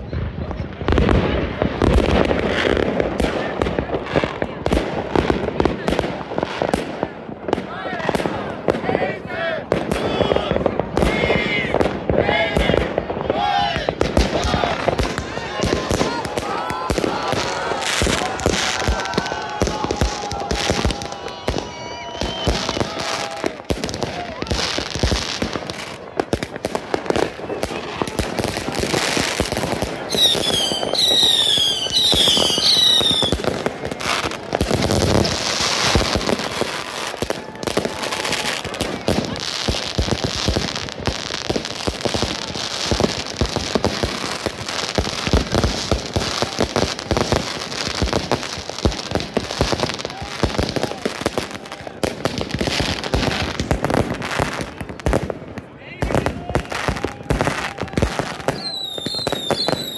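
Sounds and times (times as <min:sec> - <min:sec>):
fireworks crackling and banging: 0:00.0 - 0:59.9
firework whistles gliding down: 0:14.5 - 0:24.9, 0:30.1 - 0:40.3, 0:56.6 - 0:59.9.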